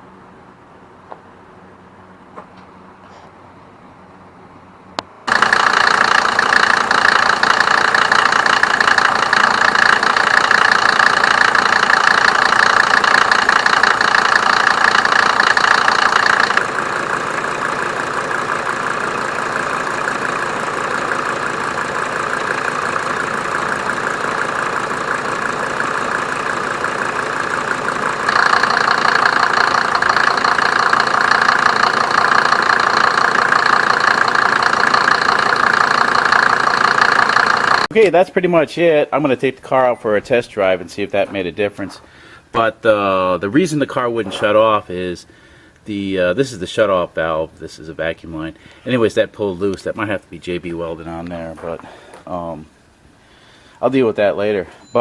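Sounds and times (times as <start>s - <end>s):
diesel engine idling: 4.0s - 55.0s.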